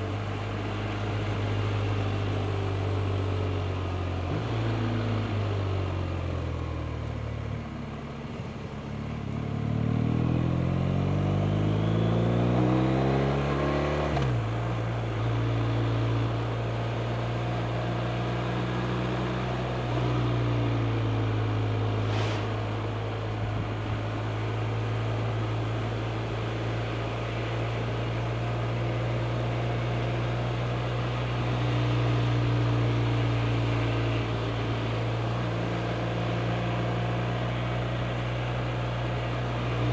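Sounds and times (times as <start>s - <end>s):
wind and road hiss: 21.4s - 39.9s.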